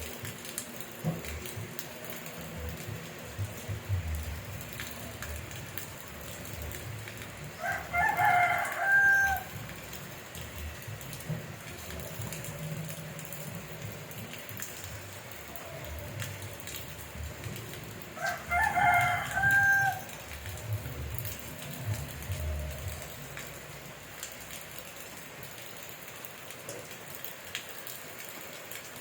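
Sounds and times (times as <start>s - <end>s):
steady rain falling: 0.0s - 29.0s
rooster crowing: 7.6s - 9.7s, 18.2s - 20.6s.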